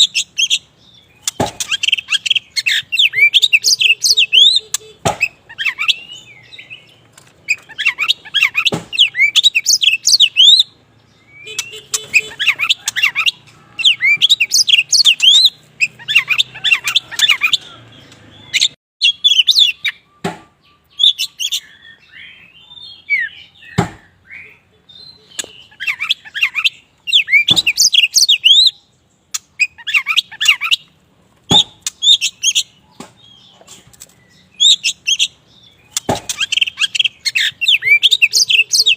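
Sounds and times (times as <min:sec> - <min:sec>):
bird singing chirps and whistles: 0:00.0 - 0:30.9, 0:31.5 - 0:33.6, 0:34.2 - 0:38.9
sharp knocks: 0:01.2 - 0:01.8, 0:05.0 - 0:05.3, 0:08.7 - 0:09.0, 0:20.2 - 0:20.5, 0:23.8 - 0:24.1, 0:31.4 - 0:31.9, 0:36.0 - 0:36.4.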